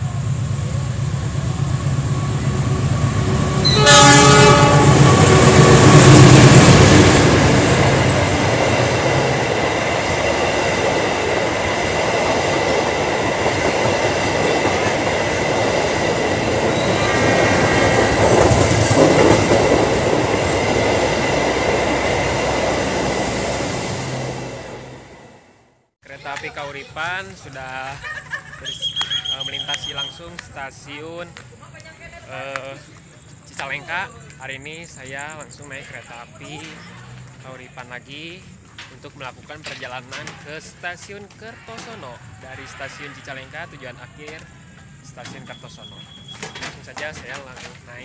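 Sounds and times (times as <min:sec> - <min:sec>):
train carriages rushing past: 0:00.0 - 0:25.6, 0:38.5 - 0:48.0
train horn: 0:03.6 - 0:05.9
wheel clatter over rail joints: 0:38.6 - 0:40.7, 0:45.2 - 0:48.0.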